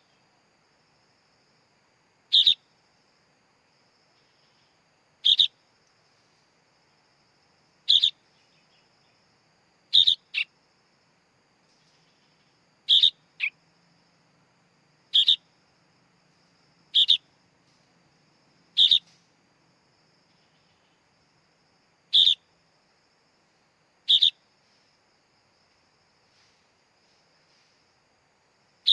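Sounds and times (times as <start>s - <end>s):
bird chick calling: 7.9s - 8.2s, 10.0s - 10.5s, 12.9s - 13.5s, 15.2s - 15.4s, 18.8s - 19.1s.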